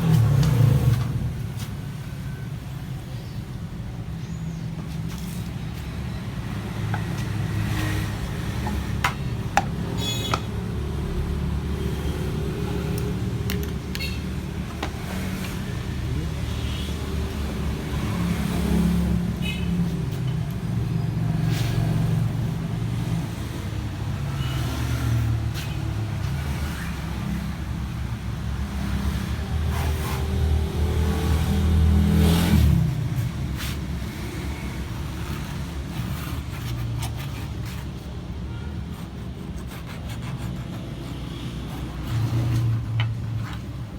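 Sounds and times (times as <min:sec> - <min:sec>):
motor vehicle rumble: 0:00.0 - 0:37.0
sharp clicks and taps: 0:13.0 - 0:14.1.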